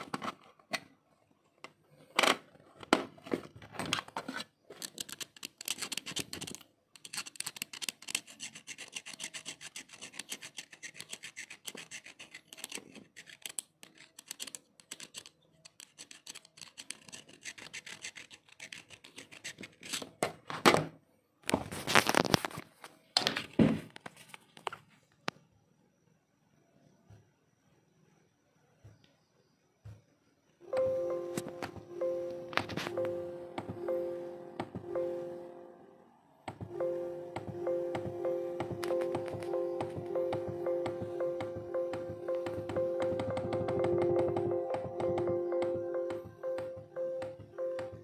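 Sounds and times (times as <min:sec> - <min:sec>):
hands scratching plastic casing: 0:04.4 - 0:20.2.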